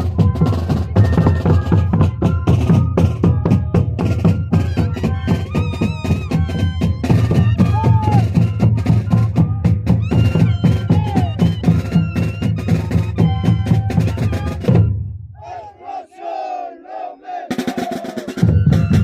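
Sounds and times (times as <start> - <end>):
bass drum and snare drumming: 0.0 - 15.6, 17.3 - 19.0
flutes holding notes: 0.0 - 16.6, 17.3 - 19.0
voices shouting: 7.6 - 8.4, 10.3 - 11.4, 15.4 - 18.5.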